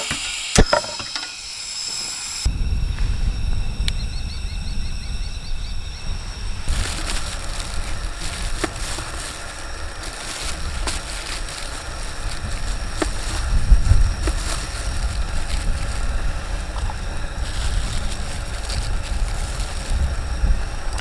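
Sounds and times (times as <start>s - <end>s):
wind rumbling on microphone: 2.5s - 21.0s.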